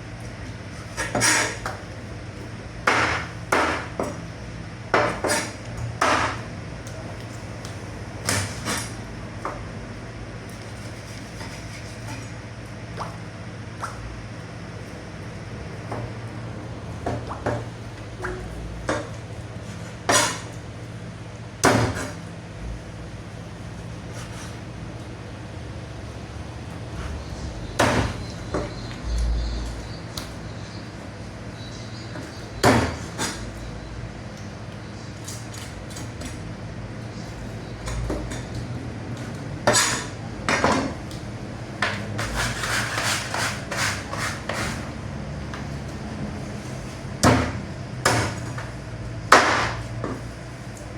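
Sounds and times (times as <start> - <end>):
low machine hum: 0.0 - 50.9
metal utensils and trays clattering: 39.6 - 41.0.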